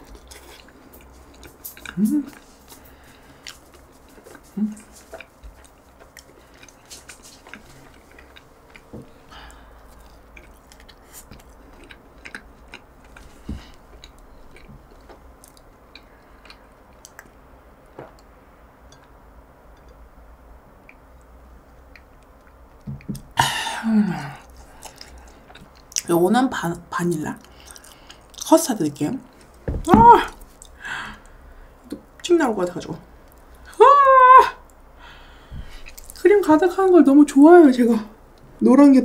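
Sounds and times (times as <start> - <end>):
chewing soft food: 0.0 - 17.4, 24.4 - 26.1, 27.4 - 28.5.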